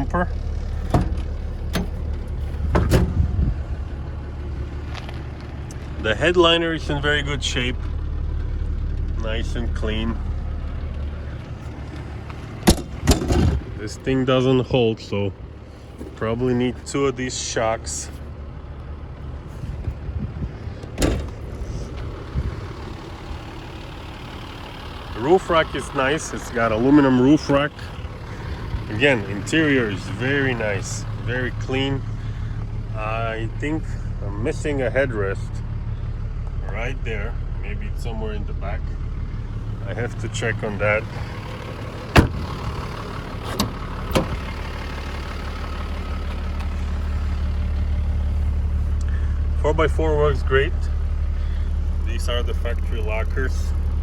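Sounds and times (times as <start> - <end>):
low rumble: 0.0 - 16.2, 18.1 - 54.0
diesel engine idling: 0.0 - 54.0
sharp thump: 2.6 - 3.4, 12.6 - 13.7, 42.2 - 42.4.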